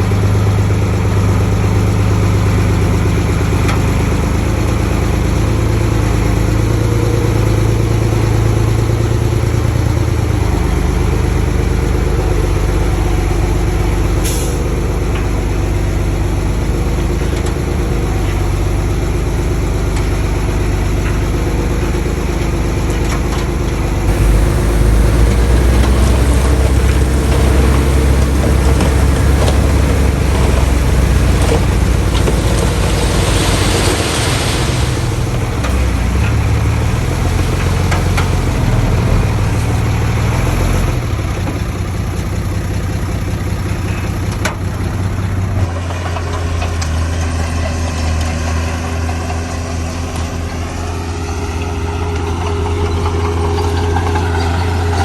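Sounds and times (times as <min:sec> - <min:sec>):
bulldozer diesel engine running: 0:00.0 - 0:55.0
rushing noise: 0:24.1 - 0:40.3.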